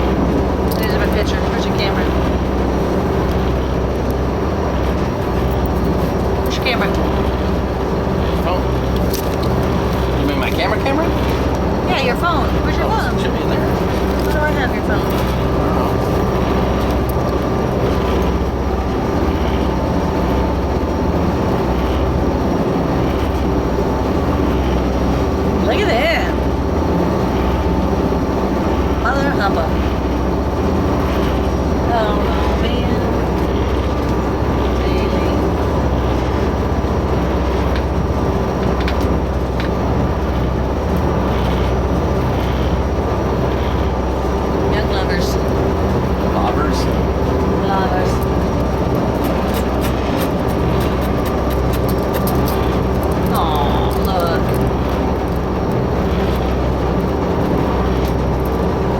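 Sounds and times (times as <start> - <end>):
ferry engines humming: 0.0 - 58.9.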